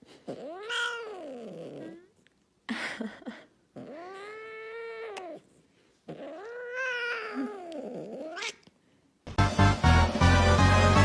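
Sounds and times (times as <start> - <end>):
cat meowing: 0.4 - 2.1, 3.8 - 5.4, 6.1 - 8.6
music: 9.3 - 11.0.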